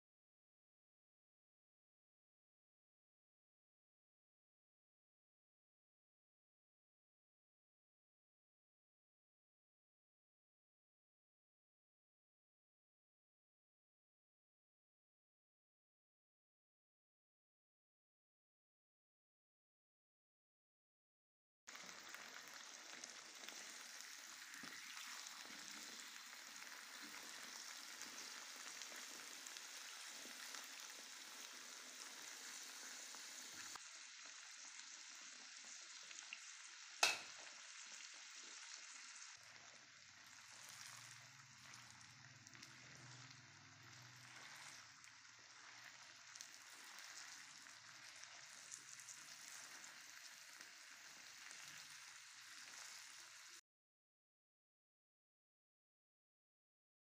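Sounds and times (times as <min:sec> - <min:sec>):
potato sticks sizzling in oil: 0:21.7 - 0:53.6.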